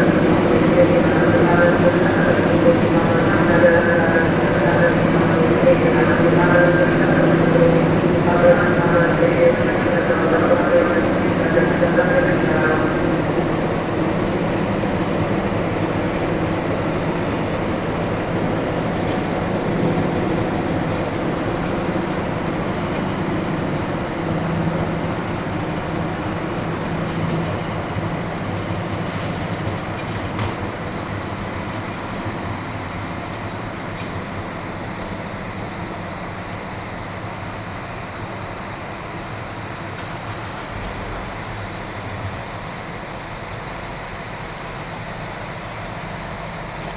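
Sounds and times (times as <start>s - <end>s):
train rumbling: 0.0s - 46.9s.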